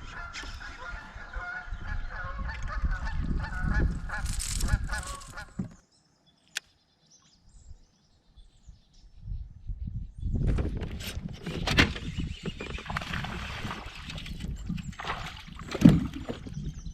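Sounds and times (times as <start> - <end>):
geese honking: 0.0 - 5.6
low rumble of wind: 0.0 - 5.9, 7.3 - 16.9.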